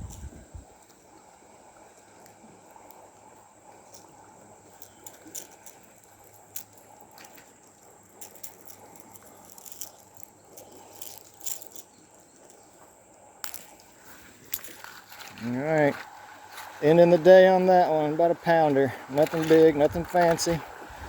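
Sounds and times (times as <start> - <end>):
low steady hiss: 0.0 - 21.0
faint small clicks and rattles: 1.8 - 15.5.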